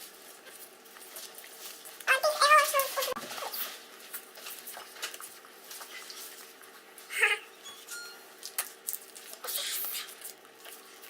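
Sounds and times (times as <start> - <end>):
cards and foil packs rustling: 0.0 - 7.2, 8.3 - 11.0
high-pitched voice-like sound: 2.1 - 3.6, 7.1 - 7.5.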